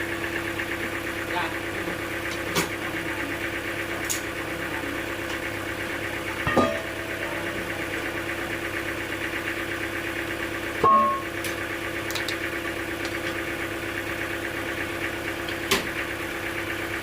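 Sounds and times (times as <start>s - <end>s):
engine running: 0.0s - 17.0s
sharp metallic clank: 6.5s - 7.0s.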